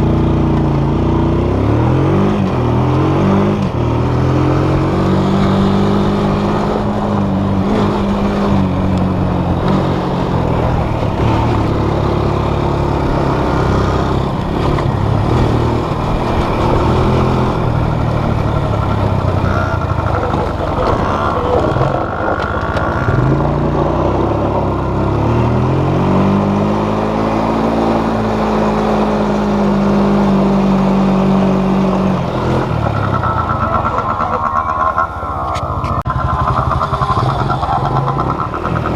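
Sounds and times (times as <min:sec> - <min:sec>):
off-road vehicle engine revving: 0:00.0 - 0:38.9.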